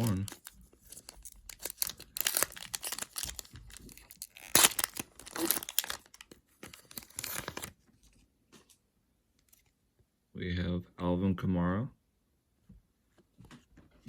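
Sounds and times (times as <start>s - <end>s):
plastic wrapper tearing and crinkling: 0.0s - 7.8s.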